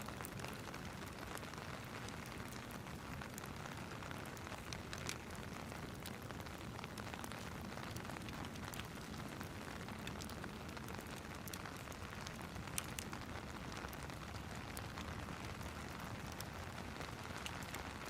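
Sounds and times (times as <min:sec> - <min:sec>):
rain falling: 0:00.0 - 0:18.0
fireplace crackling: 0:02.2 - 0:16.7.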